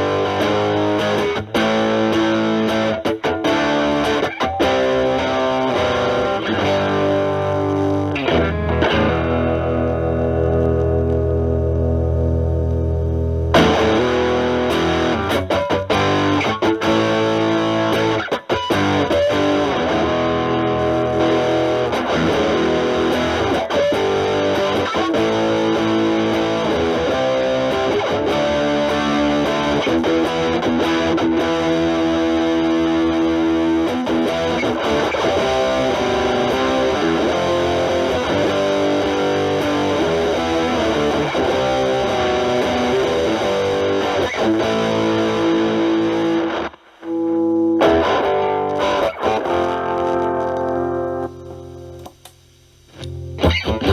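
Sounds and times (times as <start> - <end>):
distorted electric guitar lead: 0.0 - 53.9.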